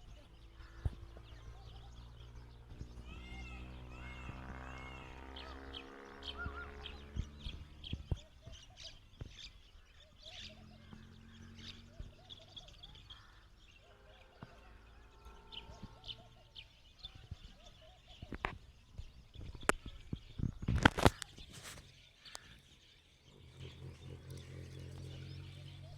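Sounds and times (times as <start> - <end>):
short lower bird calls: 0.0 - 18.5
small birds chirping: 0.0 - 25.9.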